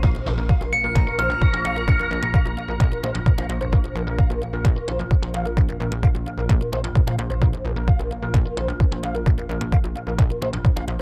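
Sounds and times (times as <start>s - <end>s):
held synth notes: 0.0s - 5.9s
kick drum: 0.0s - 11.0s.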